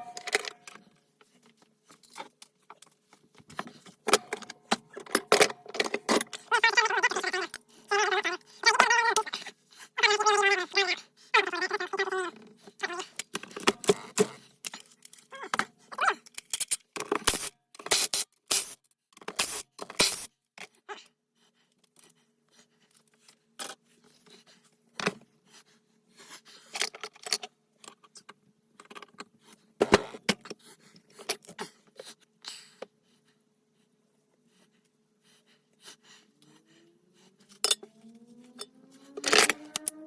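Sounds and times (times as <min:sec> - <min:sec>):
metal tools clinking and scraping: 0:00.0 - 0:01.0, 0:37.5 - 0:40.0.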